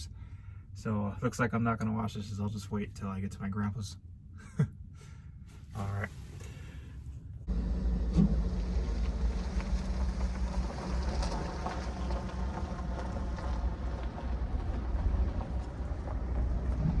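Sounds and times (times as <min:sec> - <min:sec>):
vehicle engine rumbling: 0:04.9 - 0:17.0.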